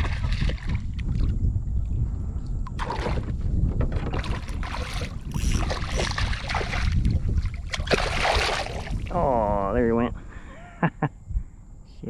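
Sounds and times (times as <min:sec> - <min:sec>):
water splashing around kayak: 0:00.0 - 0:01.4, 0:04.0 - 0:09.2
wind rumble on microphone: 0:00.0 - 0:12.0.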